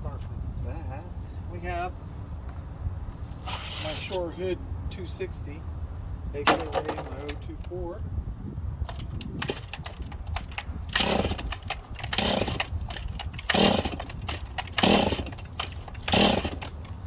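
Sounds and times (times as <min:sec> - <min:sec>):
chainsaw recoil starter whirring: 0:08.9 - 0:17.0.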